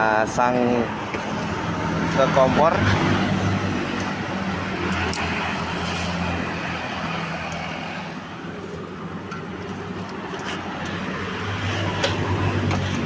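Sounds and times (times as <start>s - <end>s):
car engine humming: 0.8s - 13.0s.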